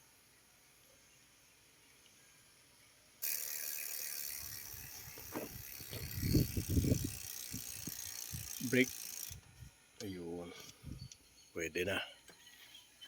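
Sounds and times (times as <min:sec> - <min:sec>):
bike hub ratchet clicking: 0:03.2 - 0:09.5
bike knocking and rattling: 0:03.2 - 0:09.6.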